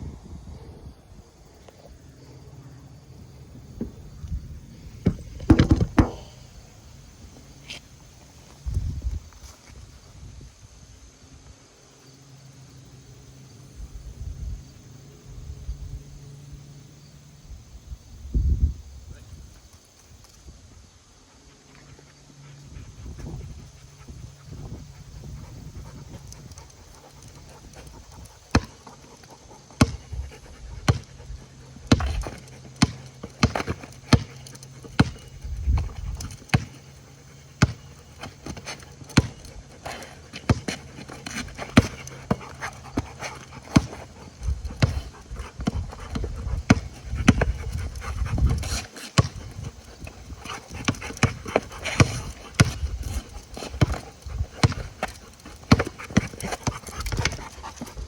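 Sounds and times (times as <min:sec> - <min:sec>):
sharp taps and knocks: 0:05.0 - 0:06.3
dogs panting: 0:21.0 - 0:58.0.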